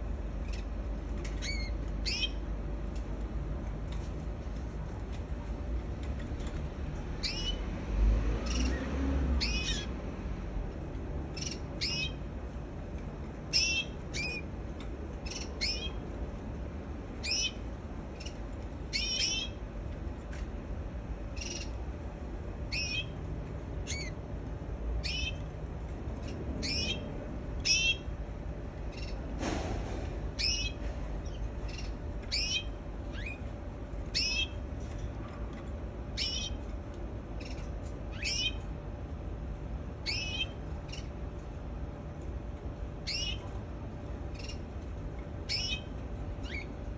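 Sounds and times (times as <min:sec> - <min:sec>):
canary chirping: 0:00.4 - 0:02.5, 0:07.0 - 0:07.7, 0:08.4 - 0:10.0, 0:11.2 - 0:12.3, 0:13.3 - 0:14.5, 0:15.1 - 0:16.1, 0:17.1 - 0:19.7, 0:21.3 - 0:21.8, 0:22.6 - 0:23.2, 0:23.8 - 0:24.2, 0:25.0 - 0:25.5, 0:26.2 - 0:28.2, 0:28.9 - 0:29.3, 0:30.4 - 0:34.7, 0:36.1 - 0:38.7, 0:40.0 - 0:41.2, 0:43.0 - 0:43.6, 0:44.3 - 0:44.7, 0:45.4 - 0:46.9.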